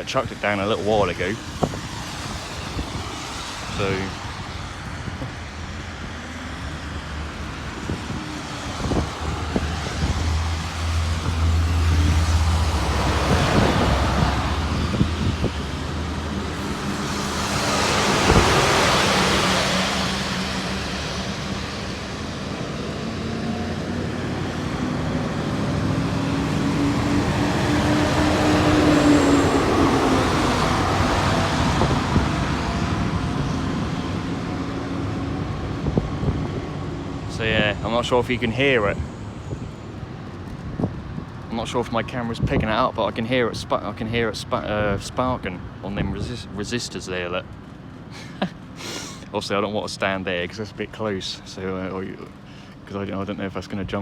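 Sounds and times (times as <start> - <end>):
vehicles passing by: 0.0 - 54.0
low engine hum: 0.2 - 41.8.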